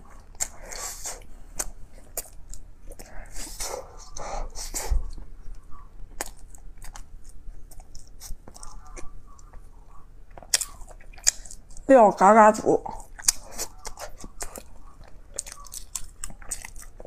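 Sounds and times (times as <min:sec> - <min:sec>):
close chewing of soft bread: 0:00.0 - 0:11.9, 0:12.8 - 0:17.0
lip smacks: 0:10.3 - 0:11.9, 0:13.0 - 0:17.0.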